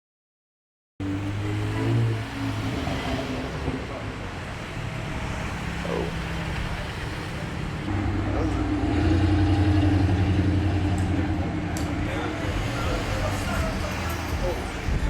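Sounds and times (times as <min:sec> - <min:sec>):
outdoor background noise: 0:01.0 - 0:15.0
car engine idling: 0:03.4 - 0:15.0.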